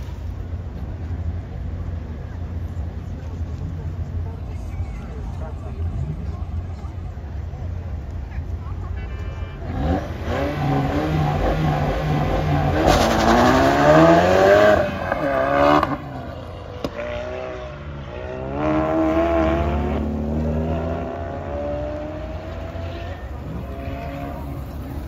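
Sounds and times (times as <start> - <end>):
car engine revving: 9.6 - 25.0.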